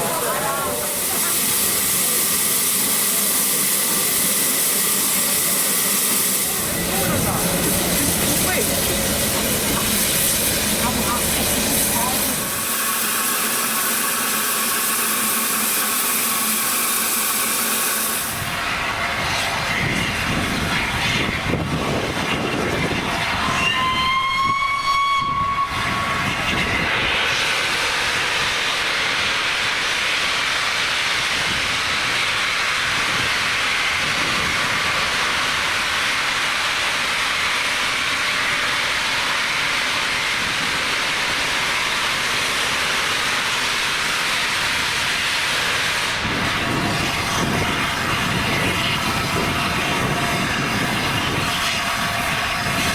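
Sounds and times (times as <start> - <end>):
steam locomotive hissing: 0.0 - 52.9
steam whistle blast: 23.4 - 26.4.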